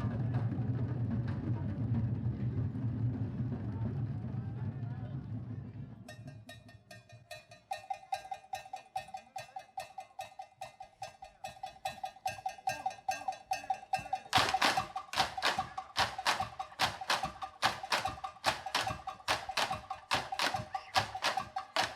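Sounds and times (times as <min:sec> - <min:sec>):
ringing stick strikes: 0:06.1 - 0:21.9.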